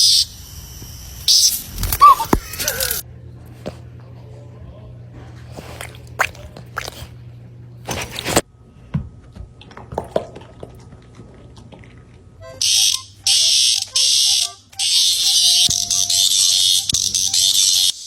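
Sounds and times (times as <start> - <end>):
smoke alarm beeps: 0.0 - 1.6, 12.6 - 18.0.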